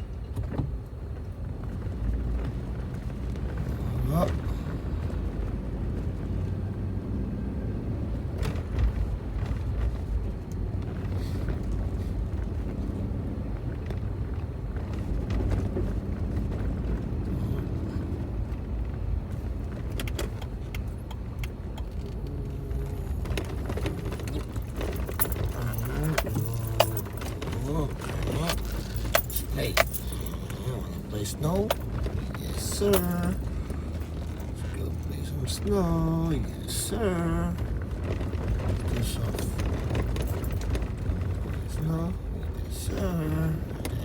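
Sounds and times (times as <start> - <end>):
engine and road rumble: 0.0 - 44.0
keys jingling: 23.8 - 35.6, 39.0 - 44.0.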